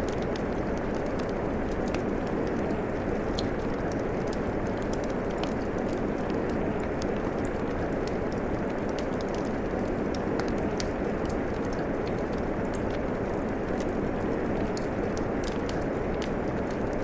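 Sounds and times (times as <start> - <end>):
fire crackling and popping: 0.0 - 17.0
steady rain falling: 0.0 - 17.0.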